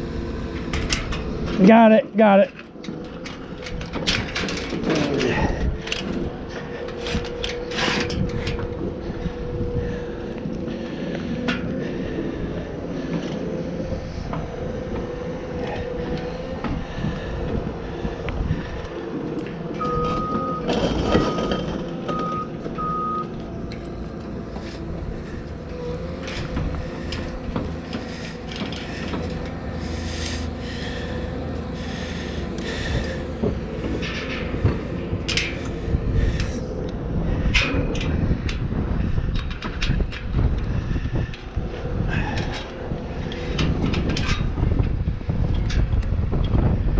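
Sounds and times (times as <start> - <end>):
engine running: 0.0 - 46.9
knocks and clanks: 2.5 - 9.4, 13.0 - 36.7
wind noise on microphone: 3.4 - 46.9
short warning beeps: 19.8 - 21.5, 22.1 - 23.3.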